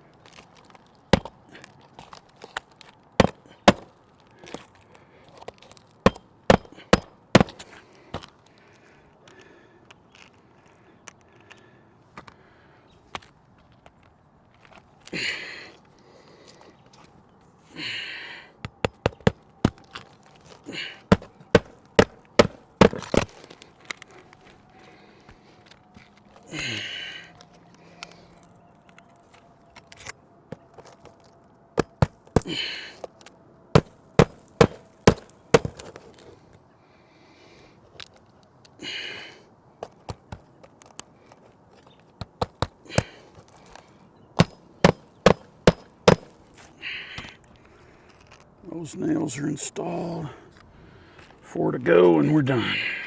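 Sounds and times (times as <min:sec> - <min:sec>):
hammer hitting nail: 0:06.0 - 0:07.6, 0:21.1 - 0:23.2, 0:33.8 - 0:35.8, 0:44.4 - 0:46.3.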